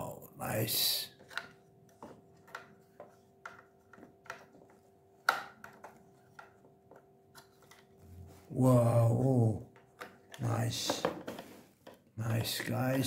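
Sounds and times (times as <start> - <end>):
plastic toy clicks and taps: 1.2 - 4.6, 5.2 - 7.8.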